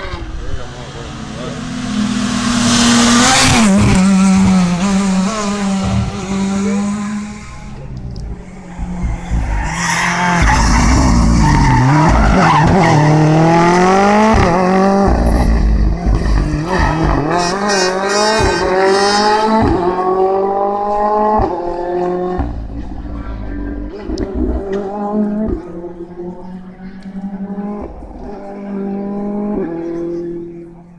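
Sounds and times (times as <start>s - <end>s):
rally car engine revving: 0.0s - 30.9s.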